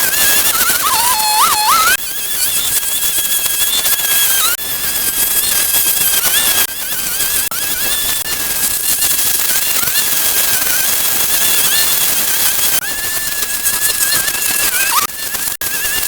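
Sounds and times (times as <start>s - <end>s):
small motor whining: 0.0s - 16.0s.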